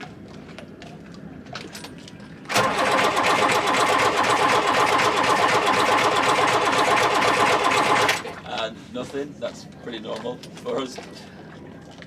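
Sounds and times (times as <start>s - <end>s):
starter motor cranking diesel: 2.5s - 8.7s.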